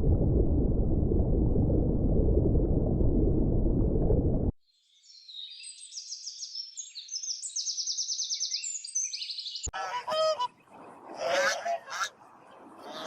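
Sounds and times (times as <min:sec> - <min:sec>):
birds chirping in trills: 0:04.8 - 0:13.0.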